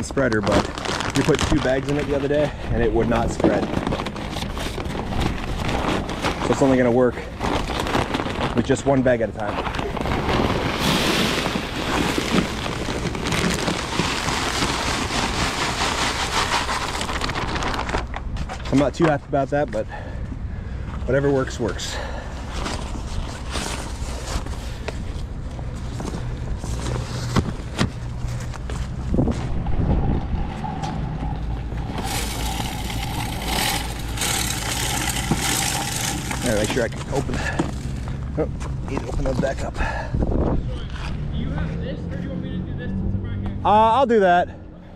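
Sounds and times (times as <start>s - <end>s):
wind buffeting microphone: 29.0s - 31.9s, 40.1s - 40.8s
salt grains scattering on pavement: 32.0s - 37.0s.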